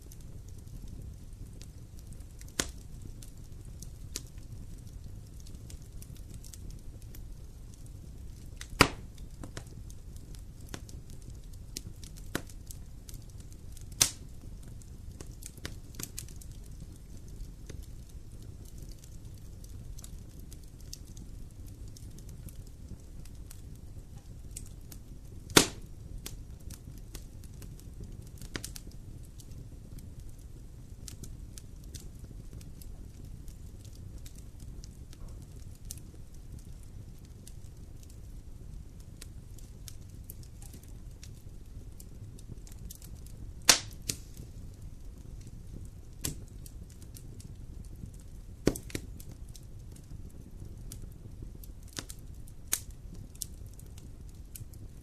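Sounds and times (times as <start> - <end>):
bonfire burning and crackling: 0.0 - 55.0
burning wood popping: 0.0 - 55.0
loud sharp fire pops: 0.9 - 7.1, 7.7 - 20.1, 25.4 - 28.9, 42.6 - 44.9, 48.1 - 49.4.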